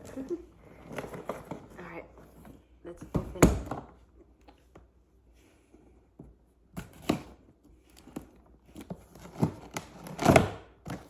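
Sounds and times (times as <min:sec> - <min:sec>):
tape and cardboard tearing: 0:08.2 - 0:11.0.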